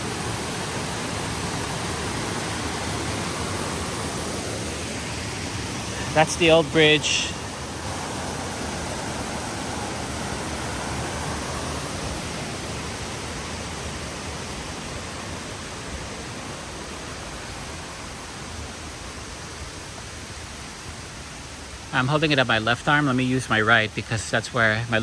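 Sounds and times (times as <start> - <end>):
waterfall rushing water: 0.0 - 25.0.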